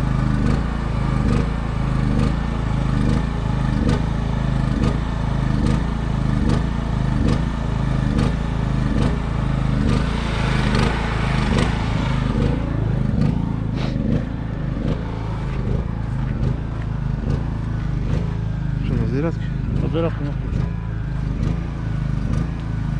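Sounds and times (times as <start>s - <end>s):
diesel engine idling with knock: 0.0s - 22.9s
brief hiss: 9.8s - 14.0s.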